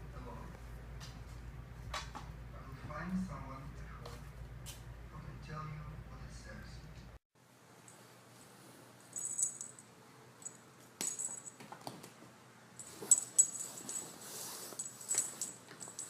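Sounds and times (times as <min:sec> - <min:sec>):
metallic jingling and clinking: 0:09.1 - 0:09.8, 0:10.4 - 0:11.6, 0:12.8 - 0:14.2, 0:14.8 - 0:16.0.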